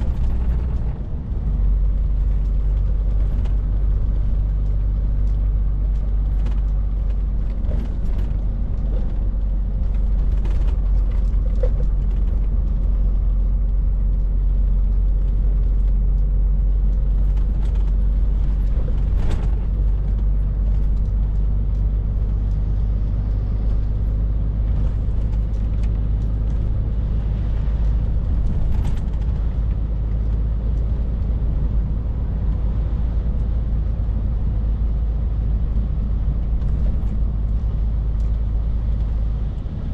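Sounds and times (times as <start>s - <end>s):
lorry diesel engine droning: 0.0s - 39.9s
road noise: 0.0s - 39.9s.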